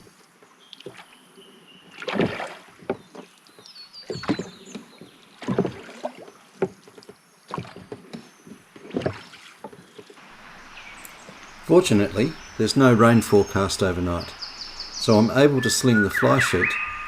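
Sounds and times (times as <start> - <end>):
oars knocking in oarlocks: 2.0 - 10.2.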